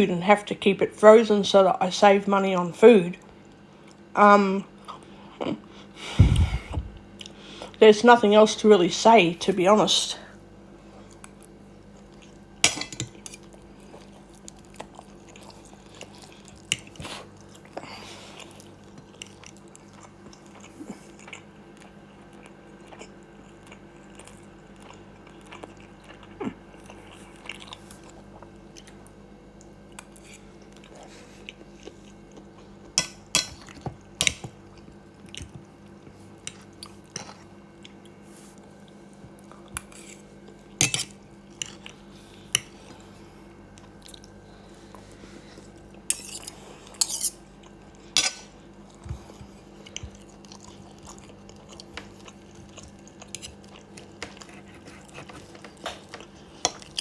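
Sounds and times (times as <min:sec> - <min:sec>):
low hum: 0:06.0 - 0:07.1
person chewing food: 0:06.1 - 0:07.8, 0:10.7 - 0:57.0
cutlery clinking on a plate: 0:12.7 - 0:13.4.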